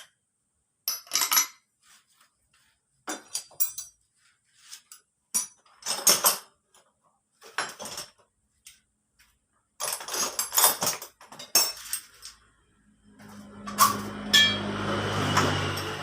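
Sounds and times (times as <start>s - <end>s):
metal tools clanking: 9.8s - 12.5s.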